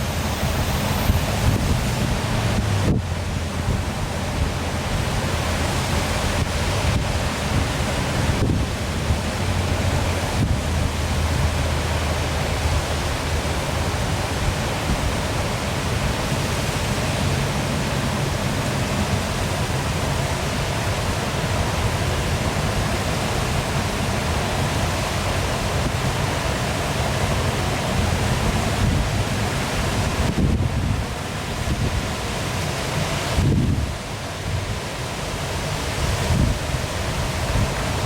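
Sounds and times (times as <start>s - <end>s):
waterfall pouring: 0.0s - 38.0s.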